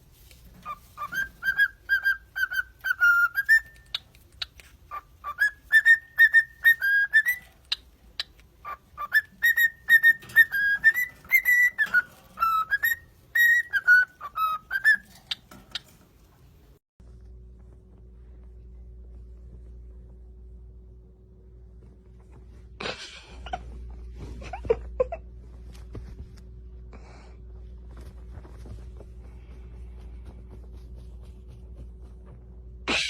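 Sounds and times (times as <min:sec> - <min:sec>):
parrot whistling a melody: 0:00.6 - 0:04.0, 0:04.9 - 0:07.8, 0:08.6 - 0:15.4.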